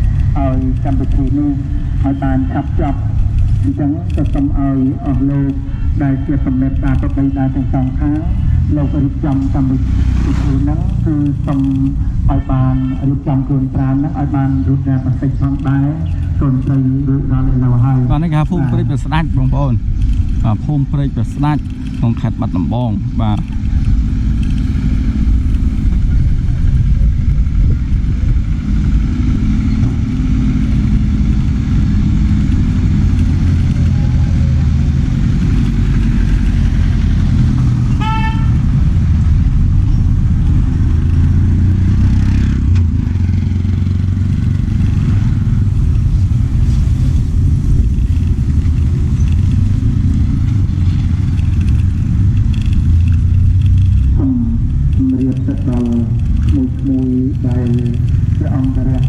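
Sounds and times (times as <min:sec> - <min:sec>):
road traffic rumble: 0:00.0 - 0:59.0
wind on microphone: 0:00.0 - 0:59.0
vehicle horn beep: 0:05.5 - 0:07.4, 0:12.3 - 0:13.4, 0:37.9 - 0:38.8.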